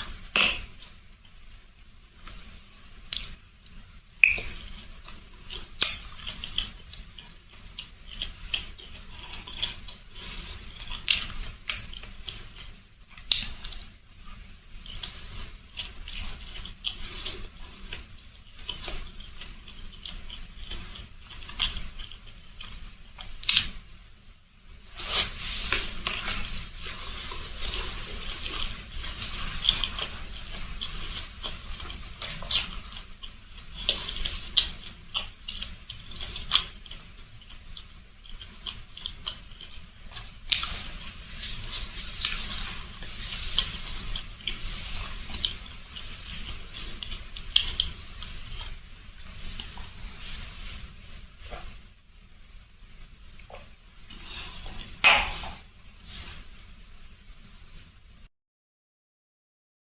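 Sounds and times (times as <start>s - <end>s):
wet chewing and slurping: 4.2s - 23.8s, 24.8s - 51.9s, 53.4s - 56.4s.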